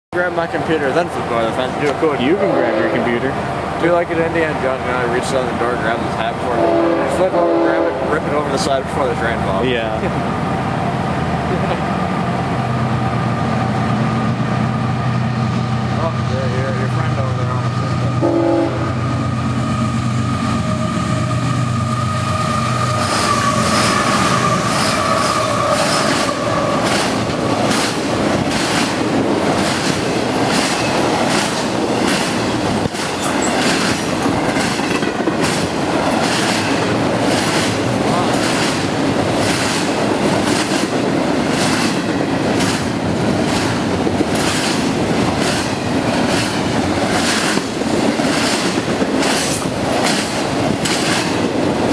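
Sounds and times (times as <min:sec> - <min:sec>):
diesel engine drone: 0:08.0 - 0:24.3
train wheels clicking on rail joints: 0:22.8 - 0:51.9.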